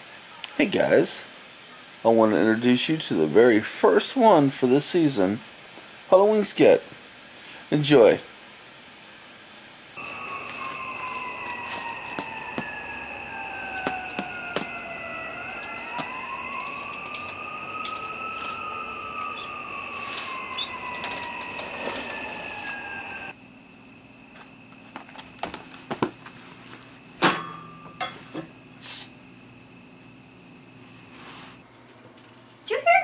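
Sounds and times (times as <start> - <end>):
eerie electronic tones: 10.0 - 23.4.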